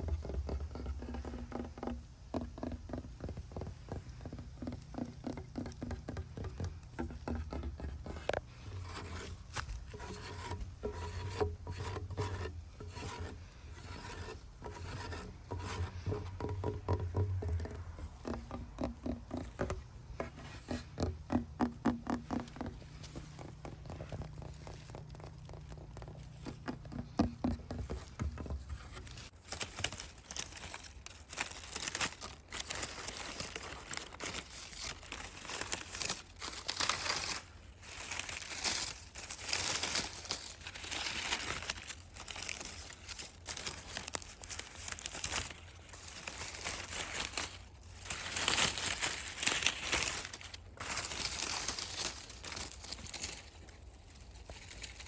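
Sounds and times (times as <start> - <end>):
dry leaves crinkling: 5.2 - 21.0, 22.2 - 27.2, 28.0 - 55.0.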